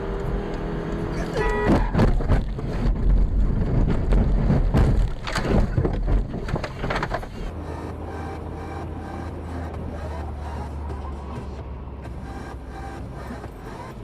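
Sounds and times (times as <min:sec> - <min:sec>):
vehicle low rumble: 0:00.0 - 0:14.0
knocks and bangs: 0:01.6 - 0:07.2.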